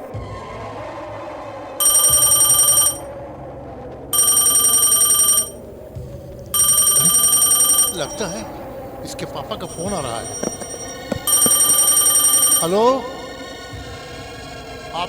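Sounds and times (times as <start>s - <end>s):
phone ringing: 1.8s - 3.1s, 4.2s - 5.6s, 6.6s - 13.0s.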